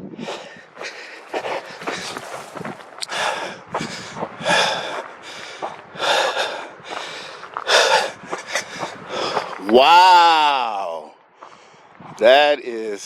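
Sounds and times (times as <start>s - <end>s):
man breathing heavily: 0.0s - 9.7s, 11.3s - 12.0s.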